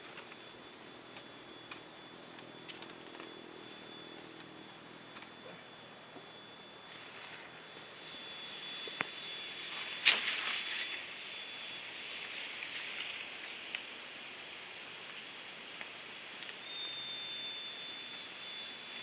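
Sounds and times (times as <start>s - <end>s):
outdoor background hiss: 0.0s - 19.0s
thin high steady tone: 0.0s - 19.0s.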